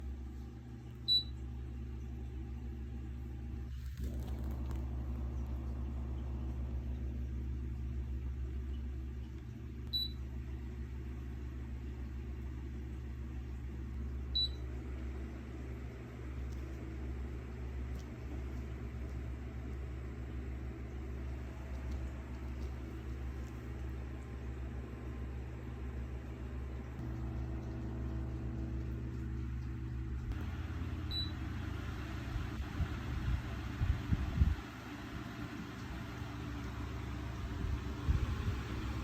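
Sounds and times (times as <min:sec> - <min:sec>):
electric fan humming: 0:00.0 - 0:39.0
fan control beeping: 0:01.0 - 0:01.4, 0:09.8 - 0:10.2, 0:14.3 - 0:14.6, 0:31.0 - 0:31.5.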